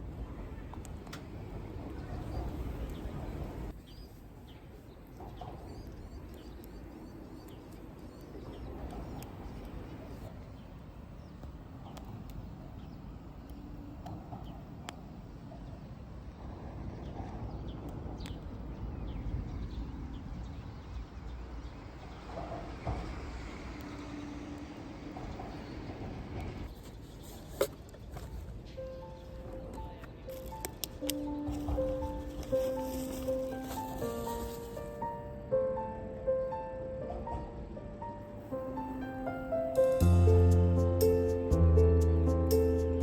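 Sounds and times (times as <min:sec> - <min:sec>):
small birds chirping: 0:01.8 - 0:16.3.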